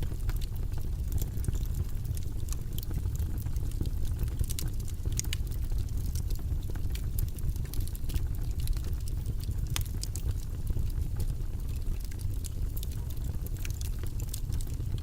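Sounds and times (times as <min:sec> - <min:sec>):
low rumbling white noise: 0:00.0 - 0:15.0
faint irregular clicks: 0:06.1 - 0:15.0.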